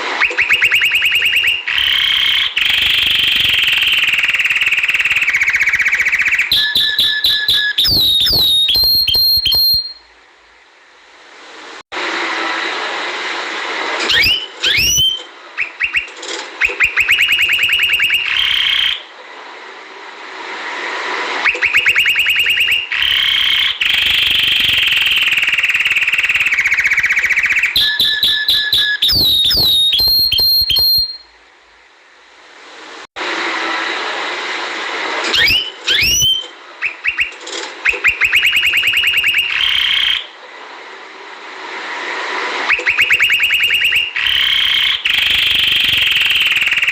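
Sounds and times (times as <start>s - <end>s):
canary singing trills: 0.2s - 10.0s, 14.1s - 19.0s.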